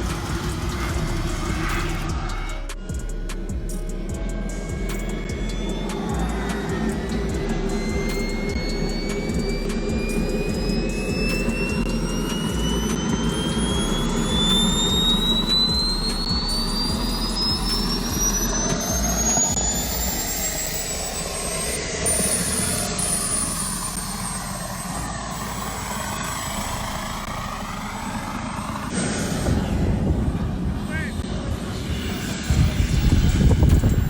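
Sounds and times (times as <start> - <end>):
model aircraft engine rumble: 0.0 - 34.0
model aircraft high whine: 0.0 - 34.0.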